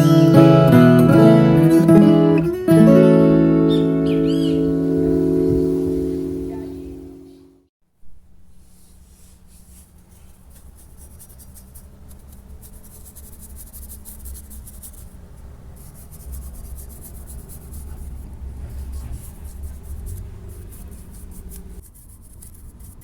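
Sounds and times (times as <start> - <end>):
music: 0.0 - 7.7
low rumble: 4.6 - 7.5
rapid scratchy rubbing: 8.6 - 23.0.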